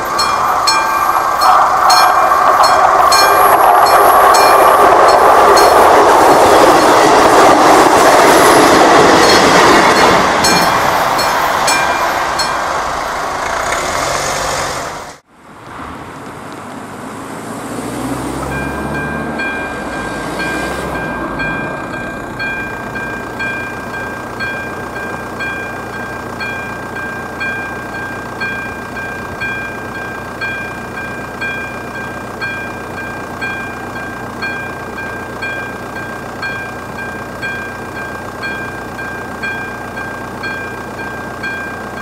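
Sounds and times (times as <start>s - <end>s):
mechanical crossing bell striking: 0.0s - 6.1s, 9.1s - 12.7s, 18.5s - 42.0s
electronic crossing bell tone: 0.0s - 7.2s, 8.4s - 12.7s, 18.5s - 42.0s
train clattering over crossing: 0.0s - 15.2s, 18.1s - 42.0s.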